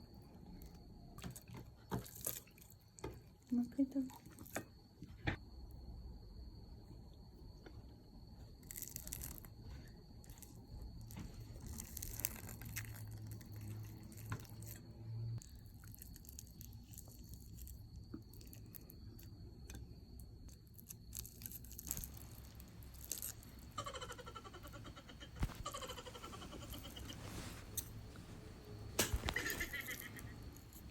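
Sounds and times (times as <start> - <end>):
tearing and chewing: 1.2 - 3.1, 8.6 - 9.6, 10.2 - 19.3, 20.5 - 24.2.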